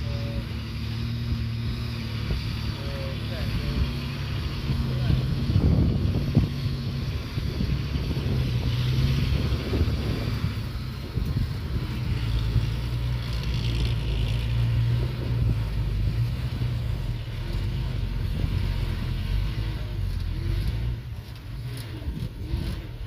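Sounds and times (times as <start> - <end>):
heavy machinery diesel engine: 0.0 - 23.0.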